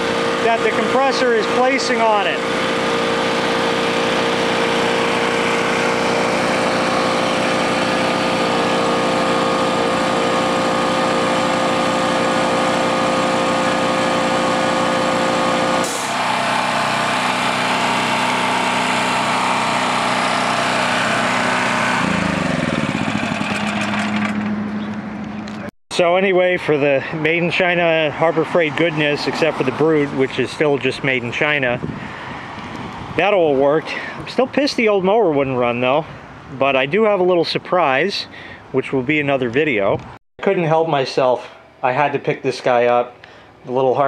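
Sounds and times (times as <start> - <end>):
small engine driving air compressor: 0.0 - 25.6.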